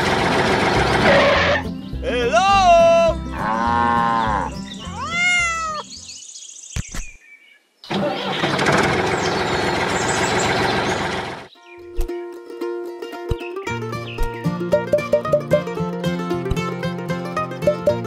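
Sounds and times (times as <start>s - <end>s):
cat meowing: 4.0s - 5.9s
background music with low beat: 13.3s - 18.0s.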